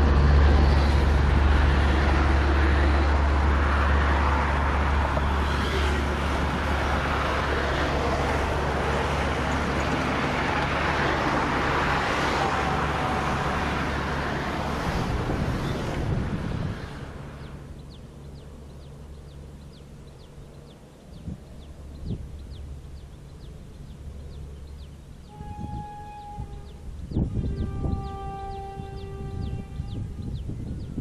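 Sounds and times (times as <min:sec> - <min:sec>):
road traffic noise: 0:00.0 - 0:31.0
train drone: 0:00.0 - 0:31.0.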